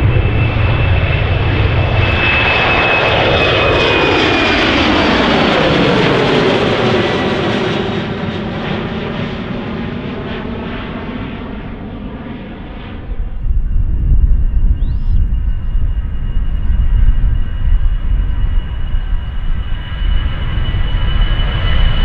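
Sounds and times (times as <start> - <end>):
low rumble with faint whine: 0.0 - 2.5, 13.0 - 22.0
jet airliner engine roar: 0.0 - 22.0.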